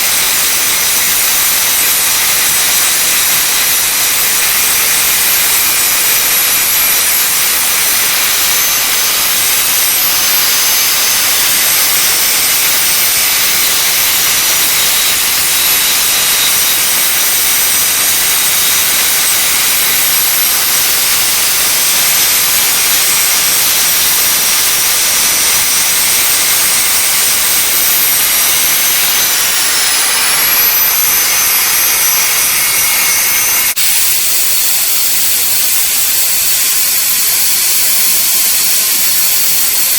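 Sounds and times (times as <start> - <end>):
welding arc frying hiss: 0.0 - 39.9
thin high whine: 4.8 - 38.7.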